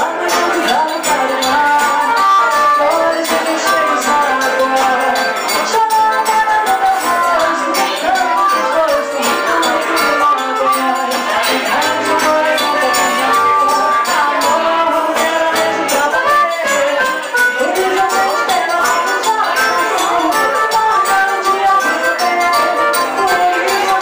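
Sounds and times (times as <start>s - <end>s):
accordion: 0.0s - 24.0s
guitar: 0.0s - 24.0s
live band playing dance tune: 0.0s - 24.0s
rattling hand percussion: 0.0s - 24.0s.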